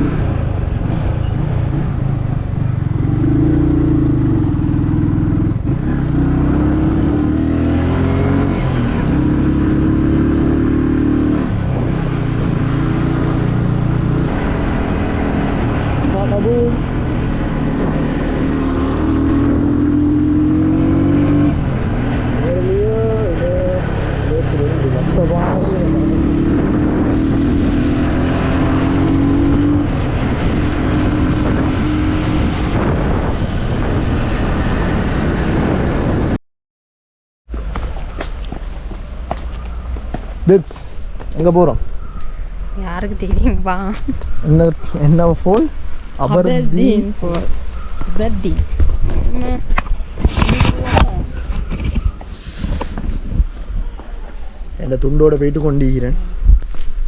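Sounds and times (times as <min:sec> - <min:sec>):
road noise: 0:00.0 - 0:36.4, 0:37.5 - 0:57.0
vehicle engine drone: 0:00.0 - 0:36.4.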